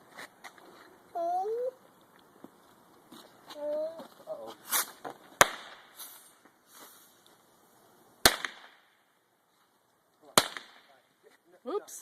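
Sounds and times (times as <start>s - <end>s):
firework bangs: 4.6s - 7.1s, 8.2s - 9.1s, 10.3s - 11.0s.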